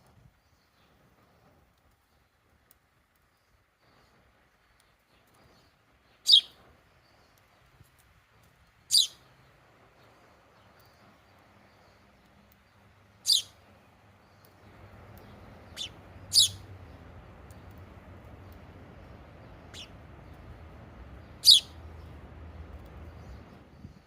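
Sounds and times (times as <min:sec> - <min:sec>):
low steady background hiss: 0:00.0 - 0:24.0
small bird chirping: 0:03.2 - 0:08.0, 0:08.7 - 0:24.0.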